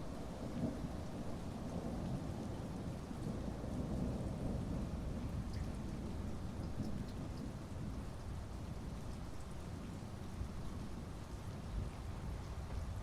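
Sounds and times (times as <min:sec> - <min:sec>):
rumble of thunder: 0:03.2 - 0:08.0.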